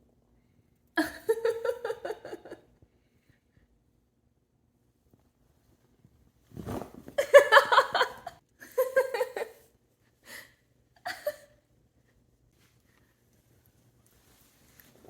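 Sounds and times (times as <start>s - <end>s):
person laughing: 1.0s - 2.6s, 7.2s - 9.6s, 11.0s - 11.5s.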